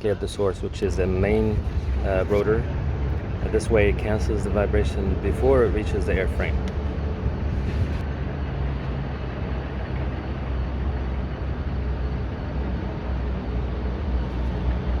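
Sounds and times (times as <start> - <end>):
low hum: 0.0 - 15.0
low machine rumble: 0.0 - 15.0.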